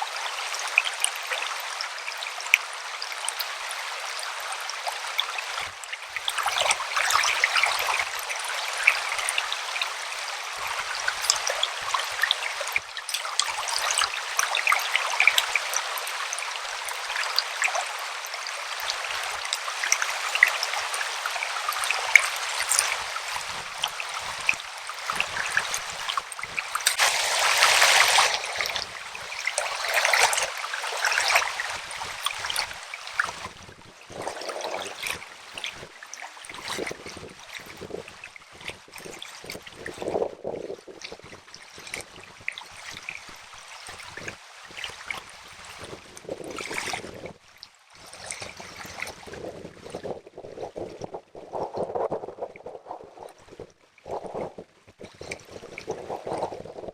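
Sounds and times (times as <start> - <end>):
river water babbling: 0.0 - 36.6
small water splashes: 0.0 - 56.9.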